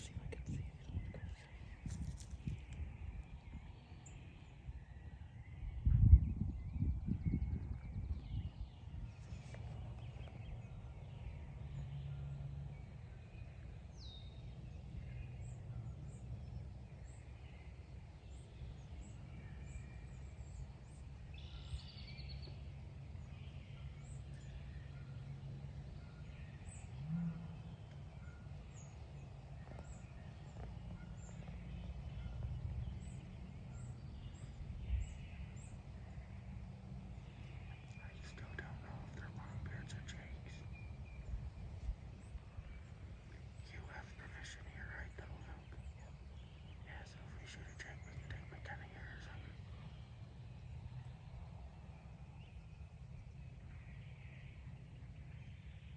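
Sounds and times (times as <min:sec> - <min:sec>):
small birds chirping: 0:00.0 - 0:55.9
steady low rumble: 0:00.0 - 0:55.9
faint bird calls: 0:26.0 - 0:36.5.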